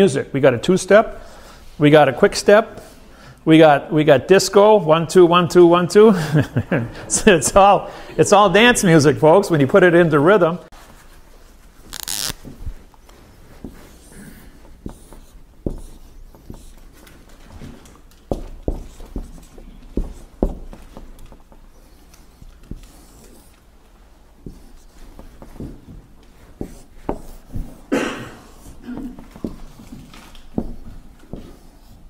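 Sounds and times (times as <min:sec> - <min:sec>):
marker strokes on whiteboard: 0:13.1 - 0:17.2, 0:18.3 - 0:23.7, 0:24.3 - 0:27.8
marker tapping on whiteboard: 0:14.8 - 0:16.7.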